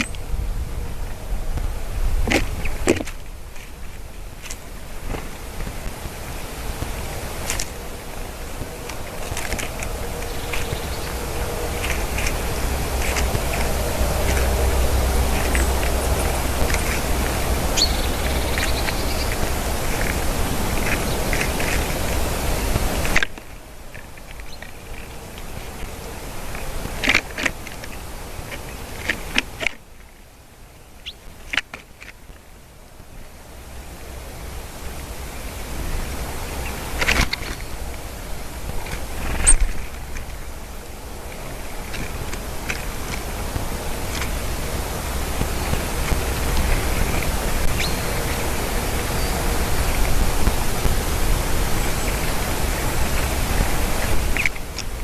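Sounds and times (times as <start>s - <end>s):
small birds ticking and chipping: 0.0s - 30.0s, 30.6s - 32.4s, 33.1s - 55.0s
wind hiss: 0.0s - 55.0s
small birds chirping: 5.4s - 23.2s, 44.1s - 50.6s.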